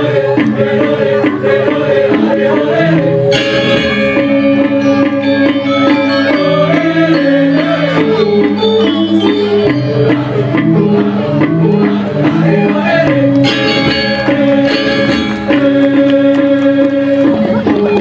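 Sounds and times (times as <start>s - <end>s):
gamelan ensemble playing: 0.0s - 18.0s.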